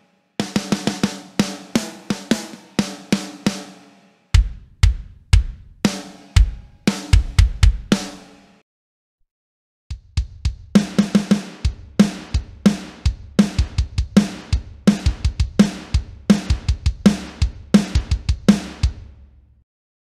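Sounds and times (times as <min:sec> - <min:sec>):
drum kit playing a beat: 0:00.4 - 0:08.5, 0:09.9 - 0:19.4.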